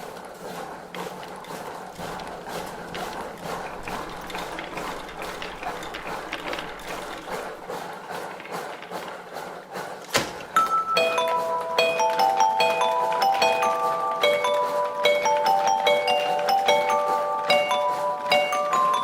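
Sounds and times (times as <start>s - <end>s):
needle ticking through fabric: 0.0s - 19.0s
chiming bell-like music: 10.6s - 19.0s.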